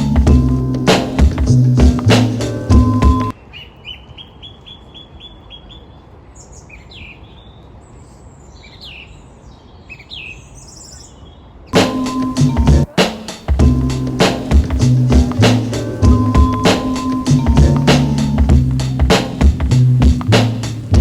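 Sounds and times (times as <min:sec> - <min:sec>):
music beat: 0:00.0 - 0:03.3, 0:11.8 - 0:21.0
songbirds singing: 0:00.0 - 0:13.0.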